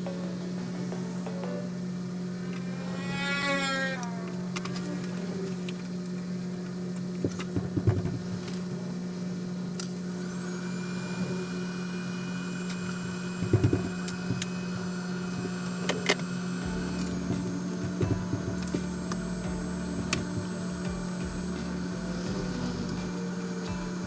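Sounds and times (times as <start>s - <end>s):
machine hum: 0.0s - 24.0s
knocks and clicks: 16.6s - 24.0s.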